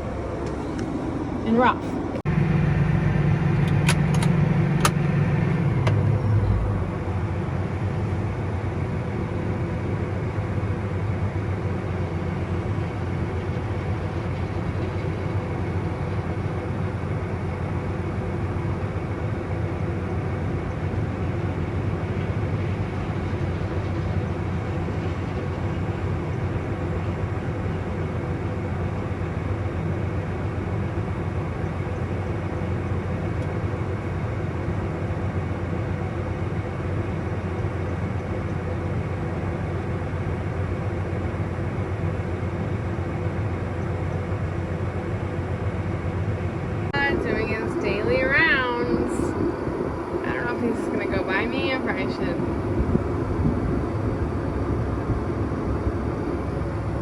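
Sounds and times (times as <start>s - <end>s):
truck engine running: 0.0s - 57.0s
sharp clicks: 3.5s - 5.0s.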